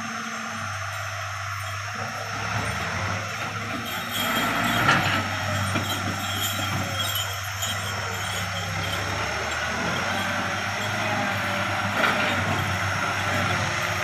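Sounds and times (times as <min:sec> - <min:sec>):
heavy machinery engine running: 0:00.0 - 0:14.0.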